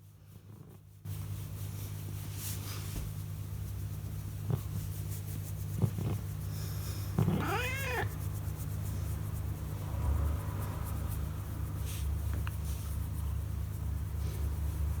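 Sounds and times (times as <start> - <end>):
cat meowing: 7.2 - 8.2.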